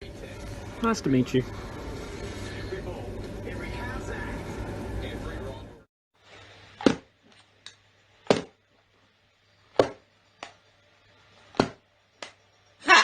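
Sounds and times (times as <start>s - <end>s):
sharp knocks: 9.8s - 10.1s, 11.6s - 11.8s.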